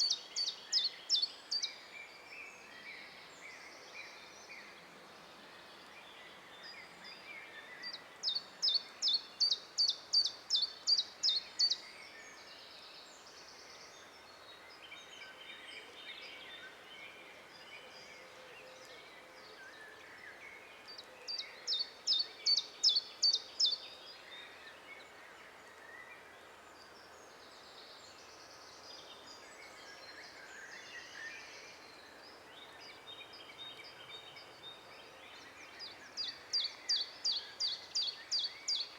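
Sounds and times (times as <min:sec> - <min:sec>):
faint birds singing: 0:00.0 - 0:38.9.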